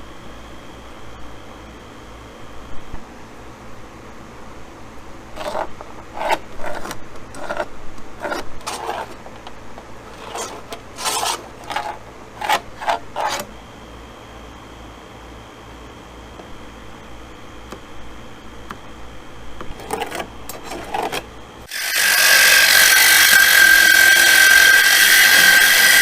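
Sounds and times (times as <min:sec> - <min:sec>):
short rasping scrapes: 0:05.4 - 0:09.2, 0:10.1 - 0:13.5, 0:21.8 - 0:26.0.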